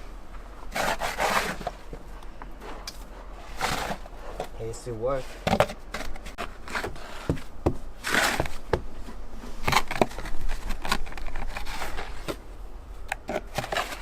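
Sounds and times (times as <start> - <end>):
dustpan scraping snow: 0.7 - 1.8, 2.6 - 5.4, 8.0 - 8.7.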